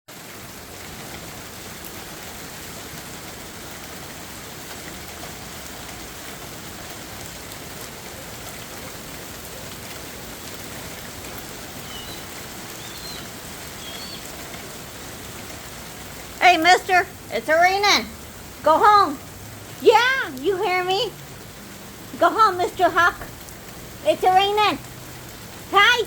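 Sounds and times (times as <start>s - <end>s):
rain pattering: 0.1s - 26.0s
faint high chirps: 11.8s - 14.3s.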